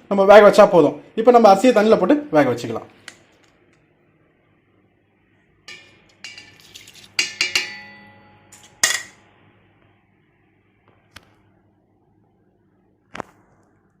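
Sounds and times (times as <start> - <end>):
metal pot and utensils clinking: 5.7 - 9.2.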